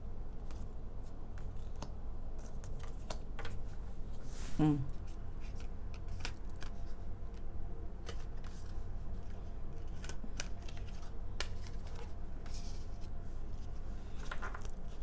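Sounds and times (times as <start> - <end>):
steady low hum: 0.0 - 15.0
cards clicking and rustling: 1.4 - 3.6, 5.4 - 13.1, 14.2 - 15.0.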